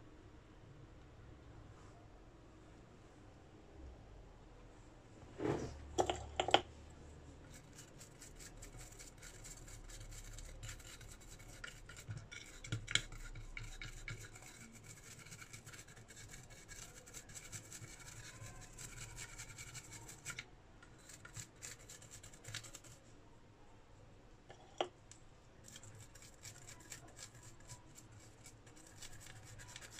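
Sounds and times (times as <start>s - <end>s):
scratching on a hard surface: 5.3s - 23.1s, 25.6s - 29.9s.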